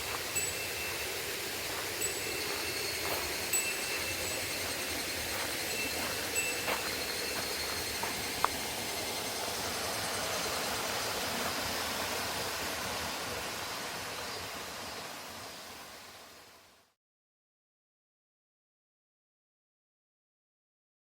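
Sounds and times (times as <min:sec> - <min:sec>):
rushing water: 0:00.0 - 0:16.6.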